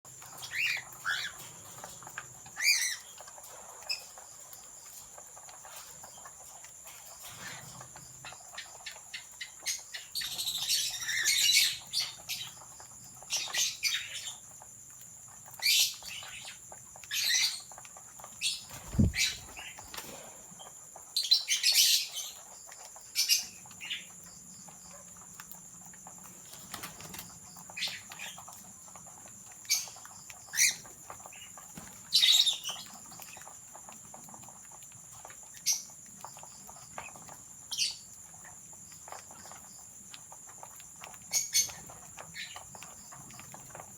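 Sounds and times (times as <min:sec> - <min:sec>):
cockatiels calling: 0:00.4 - 0:01.5, 0:02.6 - 0:03.1, 0:18.5 - 0:20.0.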